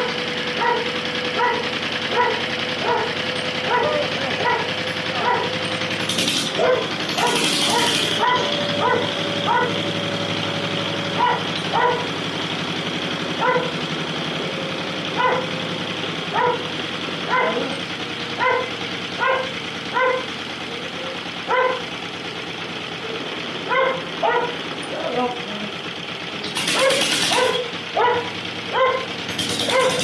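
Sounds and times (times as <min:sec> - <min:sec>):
dog barking: 0:00.0 - 0:05.6, 0:06.5 - 0:09.9, 0:11.1 - 0:12.1, 0:13.4 - 0:13.8, 0:15.1 - 0:15.6, 0:16.3 - 0:17.8, 0:18.4 - 0:20.4, 0:21.4 - 0:21.9, 0:23.6 - 0:25.4, 0:26.6 - 0:30.0
stationary engine running: 0:00.0 - 0:30.0.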